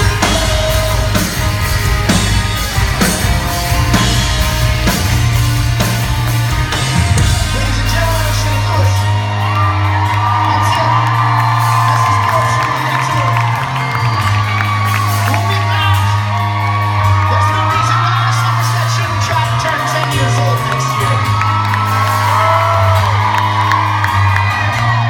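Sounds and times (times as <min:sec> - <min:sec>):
person singing: 0:00.0 - 0:02.2
crowd whooping: 0:00.0 - 0:25.0
live pop-rock band playing: 0:00.0 - 0:25.0.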